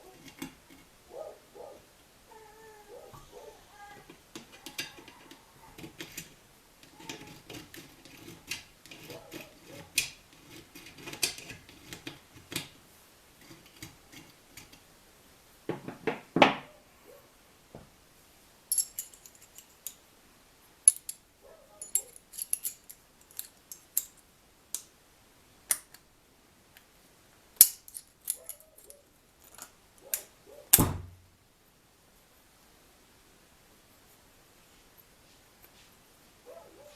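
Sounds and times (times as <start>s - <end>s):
metal parts and tools clinking: 4.4s - 12.0s, 18.7s - 20.0s, 20.8s - 24.3s, 27.6s - 29.8s.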